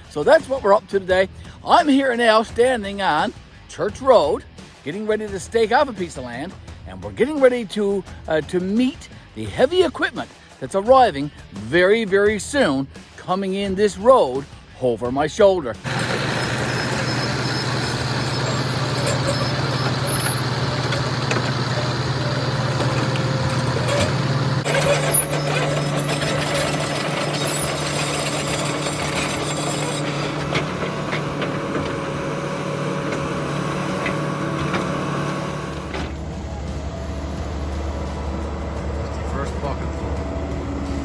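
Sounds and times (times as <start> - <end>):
diesel truck engine running: 15.8 - 41.0.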